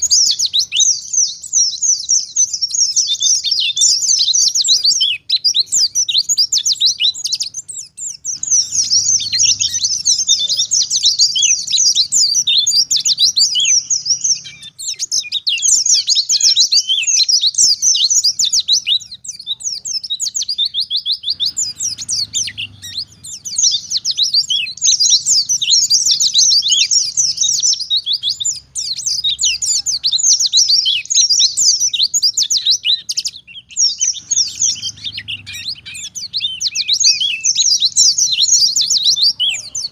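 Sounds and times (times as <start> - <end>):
bird chirping and trilling: 0.0 - 39.9.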